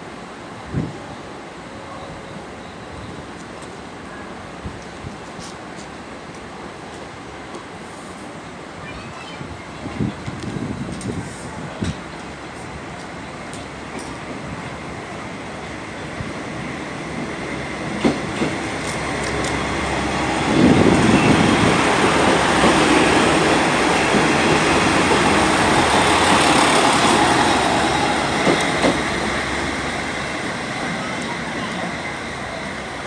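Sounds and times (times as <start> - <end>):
train running past: 0.0 - 33.0.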